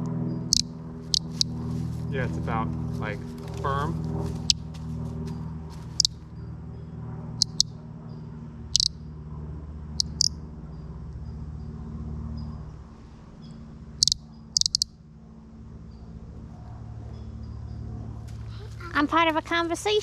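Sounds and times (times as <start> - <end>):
steady low hum: 0.0 - 20.0
bird caller chirps: 0.5 - 1.5, 7.4 - 7.7, 10.0 - 10.3, 14.0 - 14.9.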